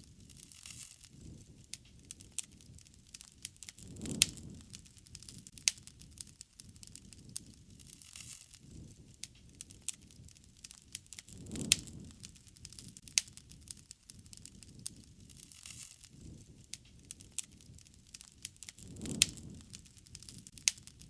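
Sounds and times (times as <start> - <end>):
low rush of flames: 0.0 - 21.0
wood crackling and popping: 0.0 - 21.0.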